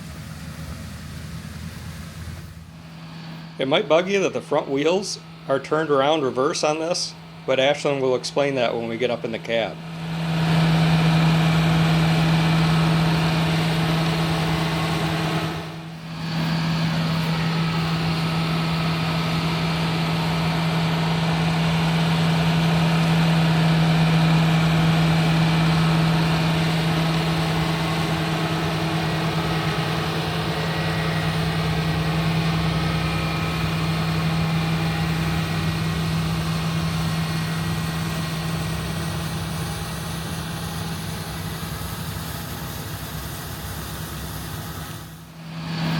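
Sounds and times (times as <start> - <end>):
tractor diesel engine humming: 0.0 - 45.9.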